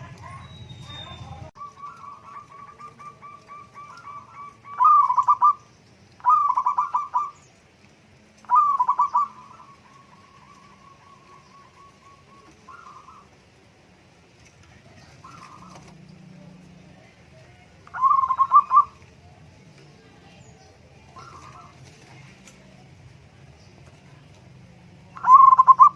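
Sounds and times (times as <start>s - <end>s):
dove cooing: 0.0s - 7.5s, 8.4s - 13.6s, 14.8s - 16.7s, 17.4s - 19.4s, 21.0s - 22.7s, 25.1s - 25.9s.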